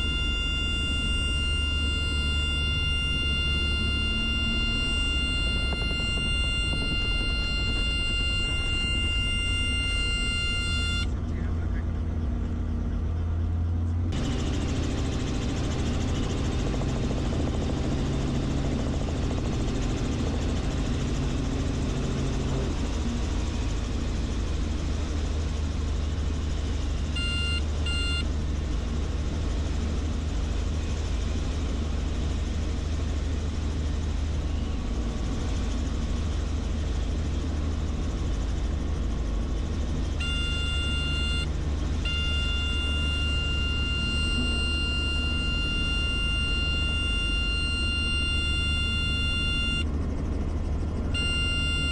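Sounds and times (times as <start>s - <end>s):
high warning tone beeping: 0.0s - 11.1s, 26.7s - 28.3s, 39.5s - 49.9s, 51.2s - 51.9s
helicopter rotor and engine drone: 0.0s - 51.9s.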